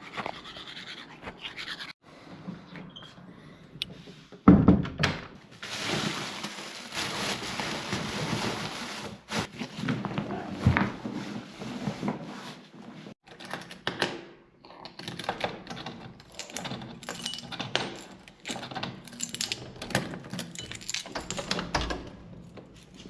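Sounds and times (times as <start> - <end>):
small hard objects clattering: 5.6 - 9.5, 16.2 - 21.6.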